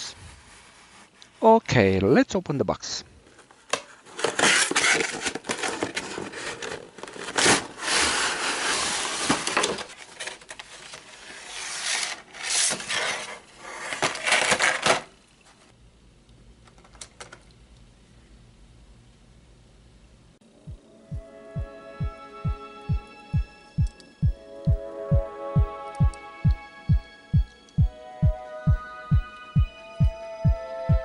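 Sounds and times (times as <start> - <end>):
packaging rustling and tearing: 4.0 - 15.2.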